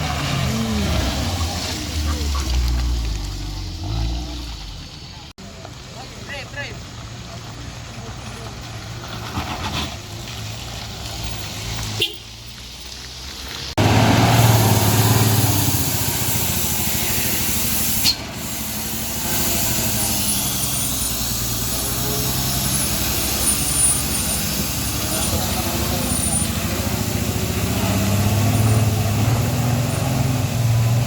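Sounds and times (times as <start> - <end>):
heavy truck engines droning: 0.0 - 31.0
rushing hiss: 10.0 - 31.0.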